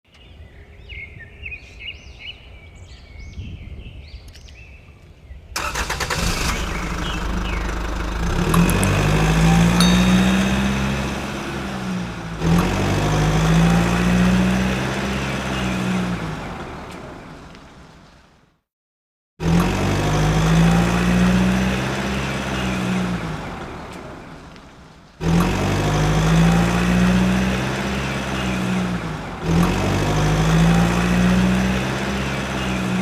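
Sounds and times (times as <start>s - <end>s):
vehicle engine revving: 5.6s - 17.0s, 19.4s - 24.3s, 25.2s - 33.0s.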